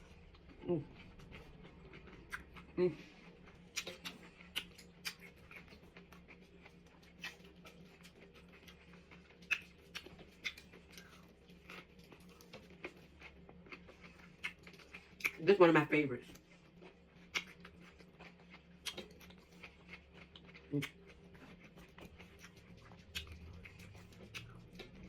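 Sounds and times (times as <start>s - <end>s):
crisp chewing crunches: 0.1s - 15.6s, 16.3s - 25.0s
wet mouth clicks: 3.7s - 5.6s, 17.3s - 17.6s, 18.8s - 19.2s, 22.1s - 25.0s.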